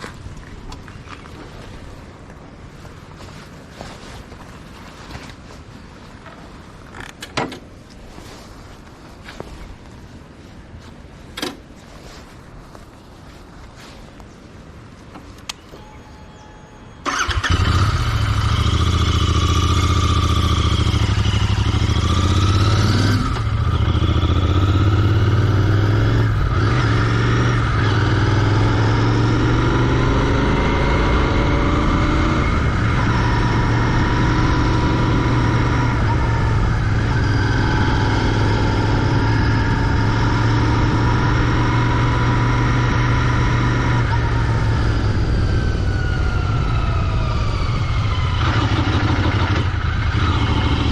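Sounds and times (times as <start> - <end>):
motorcycle engine starting and revving: 17.0 - 50.9.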